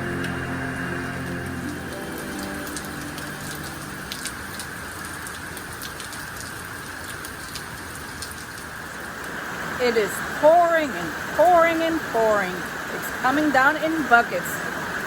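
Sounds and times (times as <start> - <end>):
background music: 0.0 - 5.4
heavy rain pouring: 0.0 - 15.0
raindrops tapping close by: 2.8 - 9.3.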